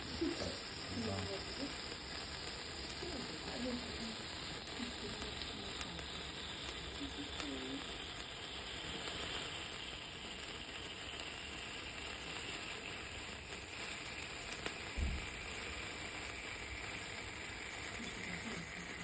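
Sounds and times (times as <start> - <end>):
sparkler fountains hissing: 0.0 - 19.0
low thump: 15.0 - 15.3.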